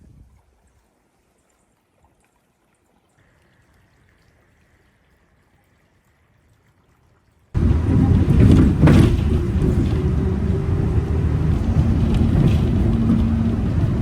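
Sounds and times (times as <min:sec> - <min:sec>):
vehicle engine rumble: 0:07.6 - 0:14.0.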